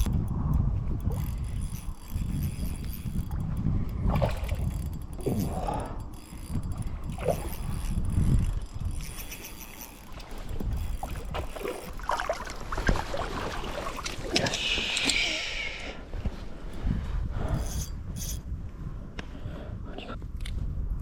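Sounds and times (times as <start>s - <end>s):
wind rumble on microphone: 0.0s - 21.0s
water splashing: 9.8s - 14.9s.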